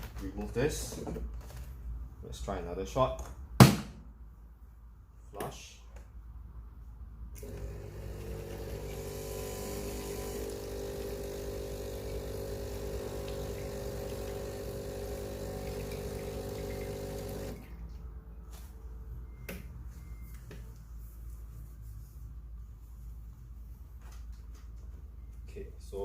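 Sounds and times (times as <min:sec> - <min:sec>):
espresso machine pump humming: 0:07.4 - 0:17.8.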